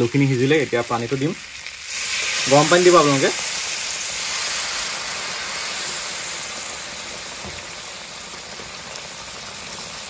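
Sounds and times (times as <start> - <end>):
curry sizzling in hot oil: 0.0 - 10.0.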